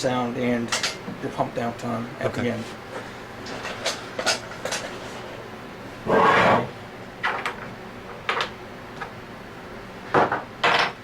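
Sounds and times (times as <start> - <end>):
rubbing strokes on metal: 6.1 - 6.7.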